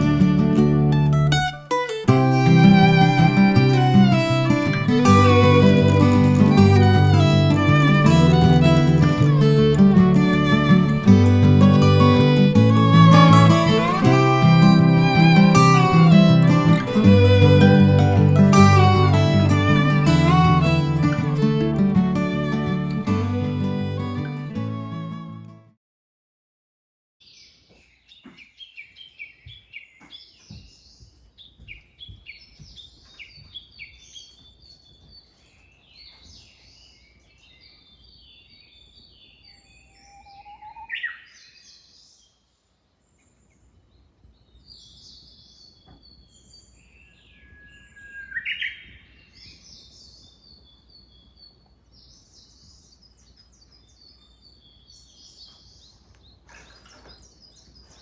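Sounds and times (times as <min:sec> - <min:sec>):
small birds chirping and trilling: 0:27.2 - 0:58.0
loud sweeping bird calls: 0:27.3 - 0:42.1, 0:44.4 - 0:58.0.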